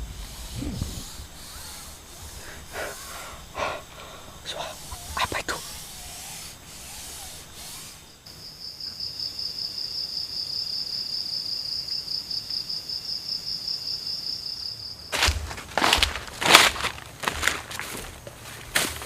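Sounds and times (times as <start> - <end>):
rustling or crunching: 0.0 - 8.2, 15.1 - 19.0
insect high-pitched trill: 0.0 - 15.1.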